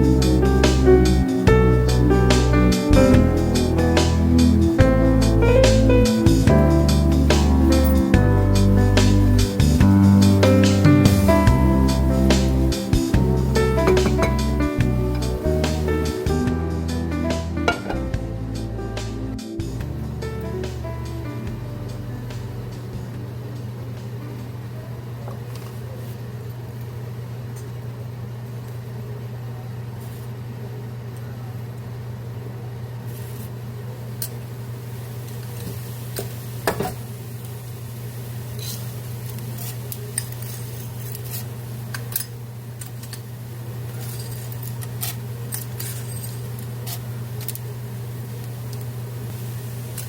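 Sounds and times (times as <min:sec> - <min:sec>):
steady low hum: 0:00.0 - 0:35.4
dishes and utensils clinking: 0:13.8 - 0:14.6, 0:17.6 - 0:18.1.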